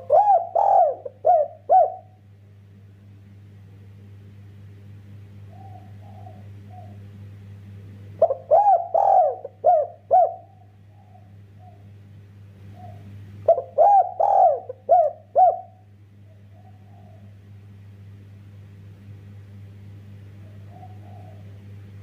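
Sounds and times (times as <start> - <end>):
dove cooing: 0.0 - 2.2, 5.5 - 7.1, 8.2 - 11.9, 12.6 - 17.5, 20.4 - 21.8.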